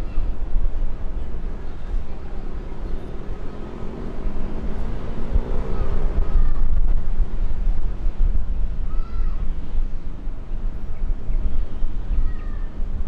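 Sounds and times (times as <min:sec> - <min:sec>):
gliding engine tones: 0:01.1 - 0:07.8
jet engines passing: 0:01.3 - 0:07.1.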